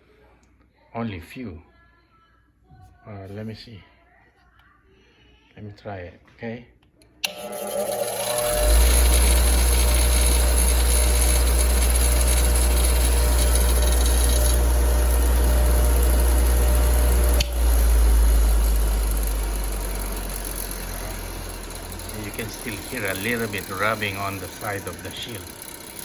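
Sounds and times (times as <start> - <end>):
bench grinder humming: 7.2 - 26.0.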